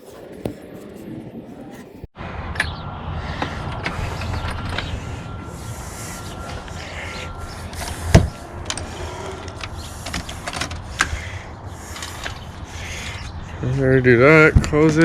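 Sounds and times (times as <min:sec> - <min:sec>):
handling noise on a boat: 0:06.4 - 0:13.2.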